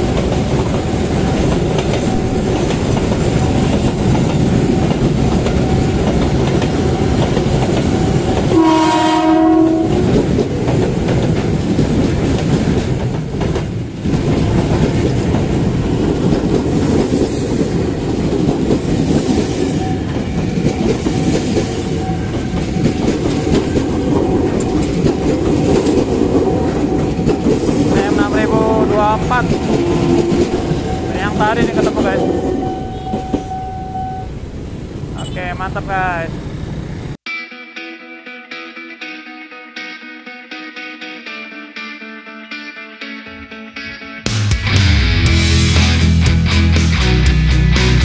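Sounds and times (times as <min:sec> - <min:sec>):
train wheels rolling on rails: 0:00.0 - 0:35.3
train horn: 0:08.5 - 0:10.2, 0:29.7 - 0:34.0.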